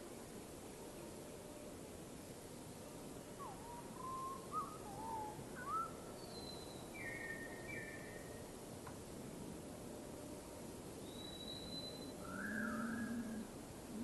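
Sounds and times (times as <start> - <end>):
steady background hiss: 0.0 - 14.0
birds whistling: 11.1 - 13.3.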